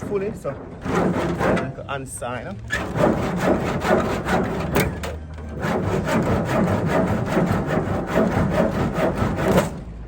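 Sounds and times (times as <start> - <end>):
handsaw cutting timber: 0.8 - 1.8, 2.7 - 4.9, 5.5 - 9.8.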